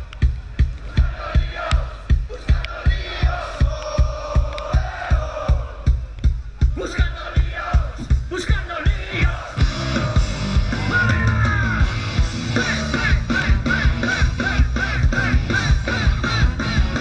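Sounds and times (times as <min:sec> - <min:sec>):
kick drum beat: 0:00.2 - 0:09.4
distorted guitars and bass: 0:07.8 - 0:17.0.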